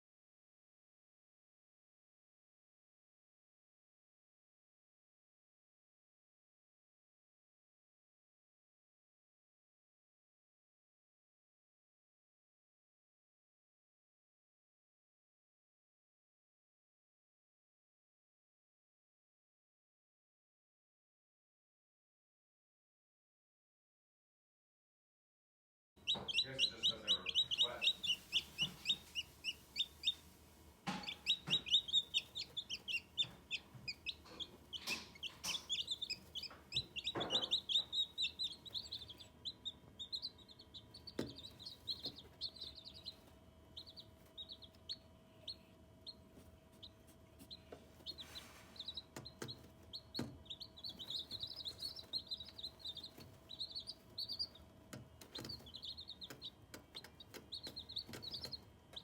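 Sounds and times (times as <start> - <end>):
chicks peeping: 26.0 - 59.0.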